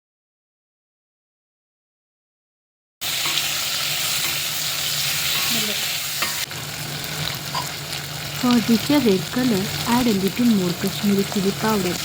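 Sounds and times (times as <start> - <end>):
fish sizzling in hot oil: 3.0 - 12.0.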